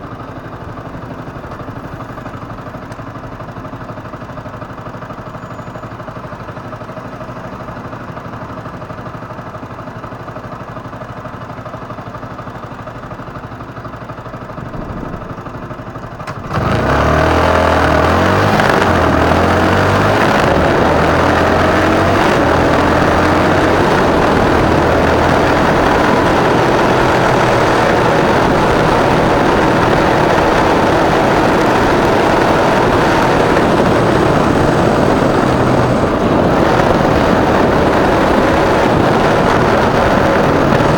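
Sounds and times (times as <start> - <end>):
motorcycle engine revving: 12.9 - 40.9
wind noise: 14.6 - 15.7, 16.6 - 40.9.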